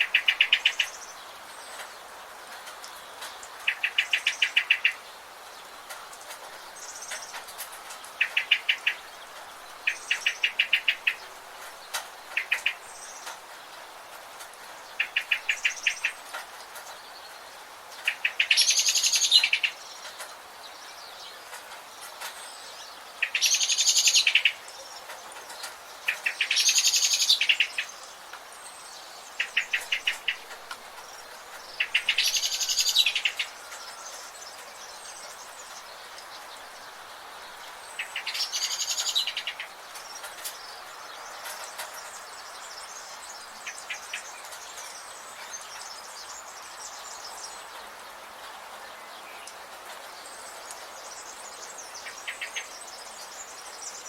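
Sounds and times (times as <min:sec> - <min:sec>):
forest insects hissing: 0:25.9 - 0:47.8.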